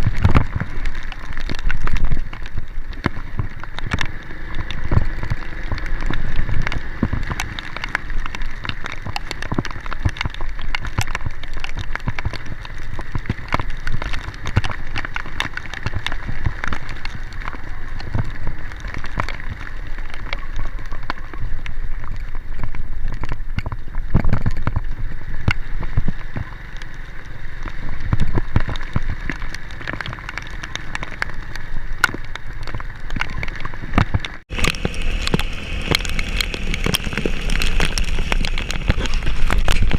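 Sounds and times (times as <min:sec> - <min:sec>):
heavy rain falling: 0:00.0 - 0:39.9
low rumble: 0:00.0 - 0:39.9
steady high hum: 0:34.5 - 0:39.9.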